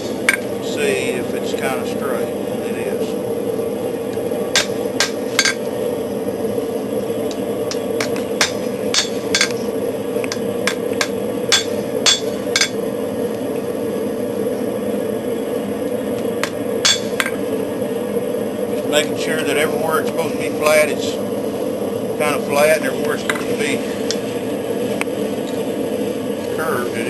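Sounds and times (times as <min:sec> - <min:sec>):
forge roaring: 0:00.0 - 0:27.0
hammer striking steel on anvil: 0:08.4 - 0:09.6, 0:10.7 - 0:12.8, 0:16.8 - 0:17.4.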